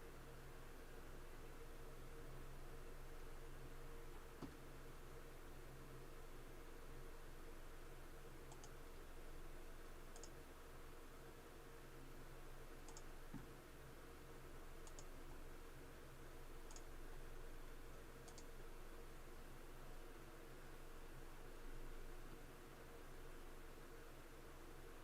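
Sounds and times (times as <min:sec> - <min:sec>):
low electrical hum: 0:00.0 - 0:25.0
computer mouse clicks: 0:04.4 - 0:04.6, 0:08.4 - 0:08.9, 0:10.1 - 0:10.4, 0:12.8 - 0:13.5, 0:14.8 - 0:15.1, 0:16.6 - 0:17.0, 0:18.2 - 0:18.5.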